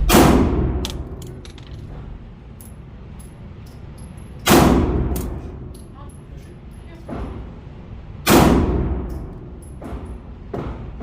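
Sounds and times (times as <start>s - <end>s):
pistol shots: 0.0s - 1.1s.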